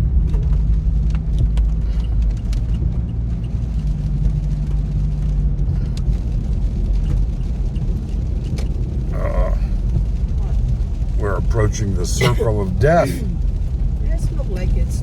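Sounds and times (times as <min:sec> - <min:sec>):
car engine and road rumble: 0:00.0 - 0:15.0
light ticks: 0:00.2 - 0:09.1.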